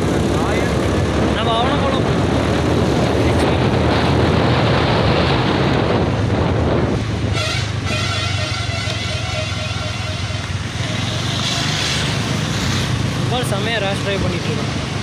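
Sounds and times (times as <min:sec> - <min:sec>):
wind rushing on microphone: 0:00.0 - 0:09.1
road noise: 0:00.0 - 0:15.0
steady pitched engine tone: 0:07.4 - 0:11.7.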